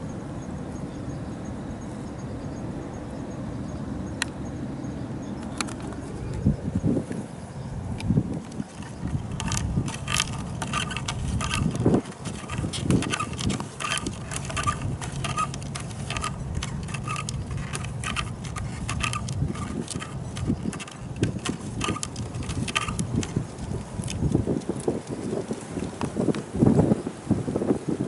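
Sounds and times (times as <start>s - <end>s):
wind rumbling on microphone: 0.0s - 28.0s
scratchy clicks: 8.0s - 25.2s.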